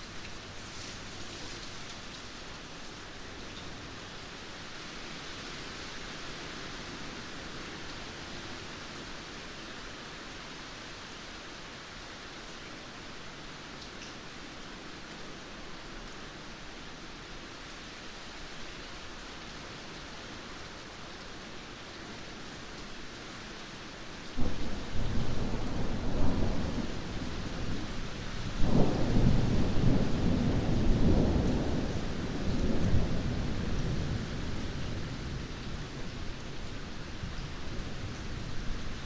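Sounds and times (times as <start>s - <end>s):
steady rain hiss: 0.0s - 39.0s.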